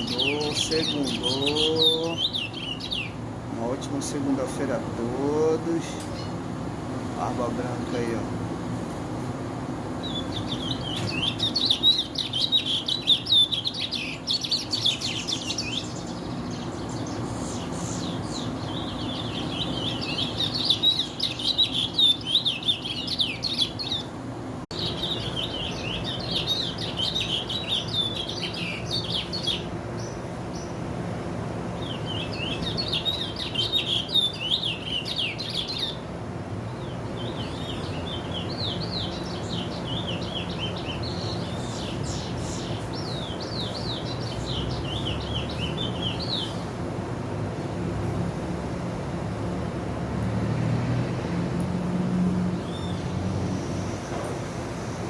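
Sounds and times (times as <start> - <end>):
finch singing: 0.0 - 6.4, 10.0 - 30.8, 31.8 - 46.7, 52.6 - 54.1.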